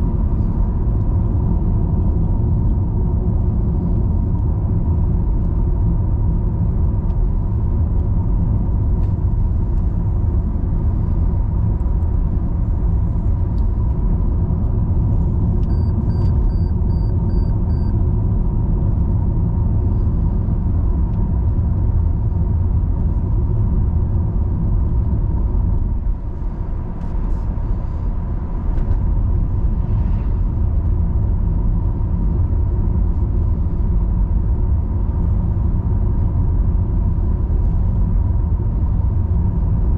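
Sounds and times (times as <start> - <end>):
car engine and tyre rumble: 0.0 - 39.9
quick high beeps: 15.7 - 17.9.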